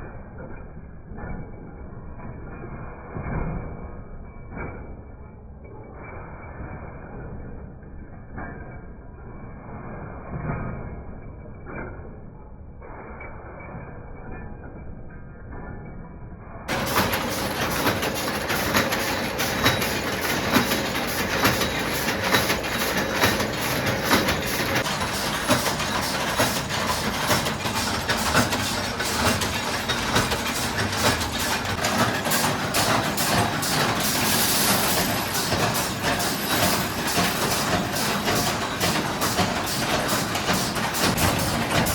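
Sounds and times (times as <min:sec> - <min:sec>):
machinery metallic clanking: 0:16.7 - 0:41.9.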